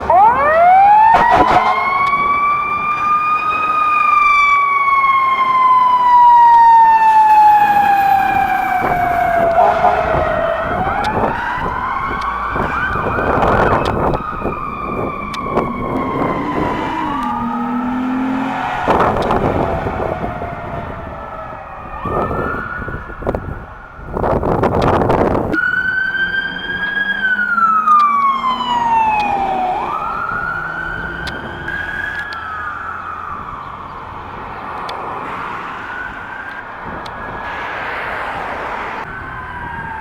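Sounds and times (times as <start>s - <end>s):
emergency sirens wailing: 0.0s - 40.0s
loud noisy bursts: 0.1s - 2.9s.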